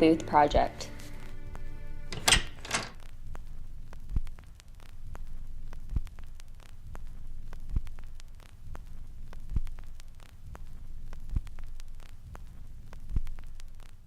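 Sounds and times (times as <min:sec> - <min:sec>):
static crackle: 0:03.0 - 0:14.0.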